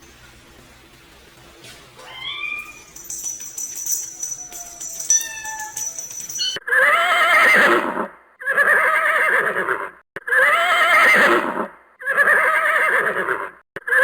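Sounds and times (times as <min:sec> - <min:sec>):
horse whinnying: 0:06.7 - 0:13.4.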